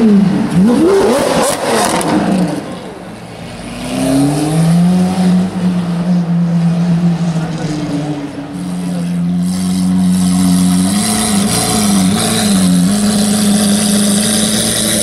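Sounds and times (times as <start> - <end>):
car engine idling: 5.4 - 15.0.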